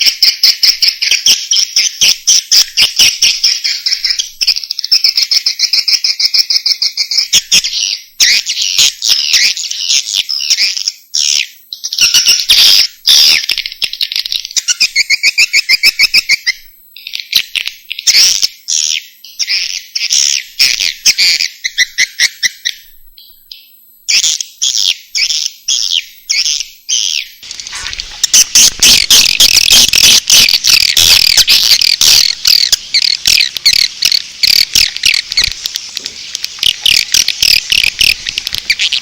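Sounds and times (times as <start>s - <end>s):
swiftlets chattering chirps: 27.4s - 39.0s.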